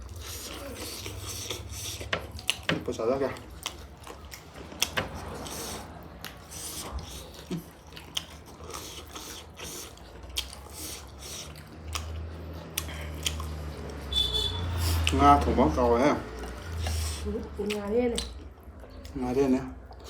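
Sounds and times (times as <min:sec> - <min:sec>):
person chewing and biting: 0:00.0 - 0:02.8, 0:03.4 - 0:15.5, 0:16.4 - 0:19.2.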